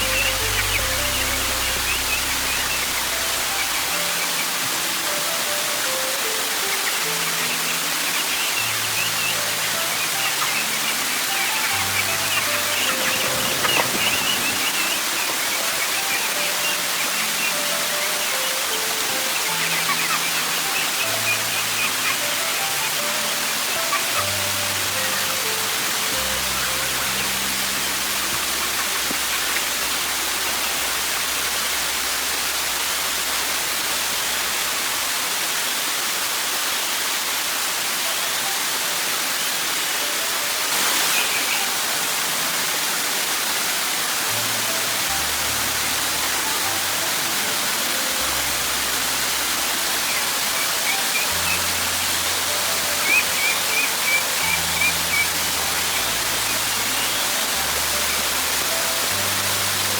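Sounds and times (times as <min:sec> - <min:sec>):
soft background music: 0:00.0 - 0:59.9
waterfall rushing water: 0:00.0 - 0:59.9
high chirps: 0:06.4 - 0:30.9, 0:45.2 - 0:59.9.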